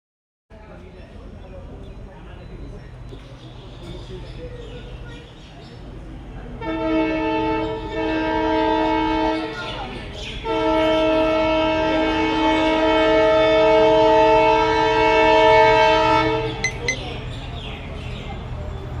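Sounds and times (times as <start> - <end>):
locomotive horn blasts: 6.6 - 9.5, 10.5 - 16.9.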